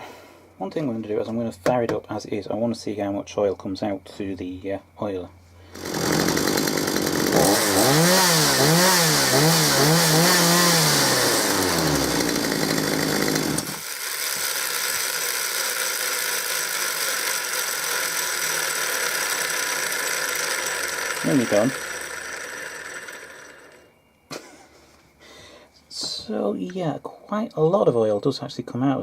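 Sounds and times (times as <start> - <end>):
chainsaw revving and idling: 5.7 - 23.8.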